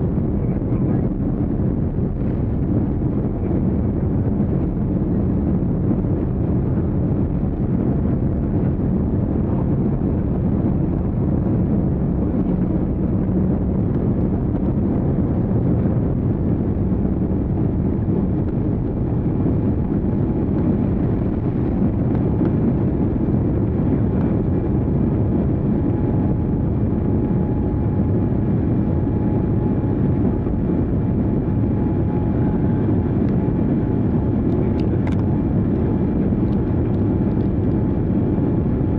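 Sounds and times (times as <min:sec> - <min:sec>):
vehicle engine drone: 0:00.0 - 0:38.9.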